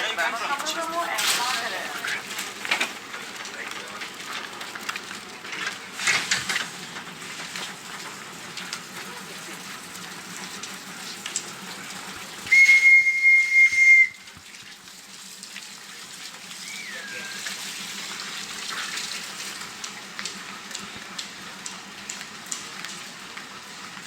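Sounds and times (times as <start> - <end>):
rising-and-falling whistle: 12.5 - 14.2, 16.6 - 17.6
high-pitched whistle blast: 12.5 - 14.3, 16.6 - 17.5.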